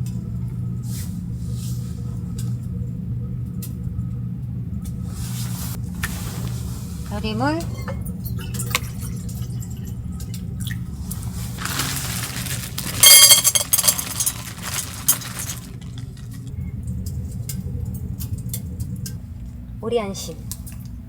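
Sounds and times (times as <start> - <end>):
steady low hum: 0.0 - 21.0
bowl clinking and rattling: 11.3 - 16.5.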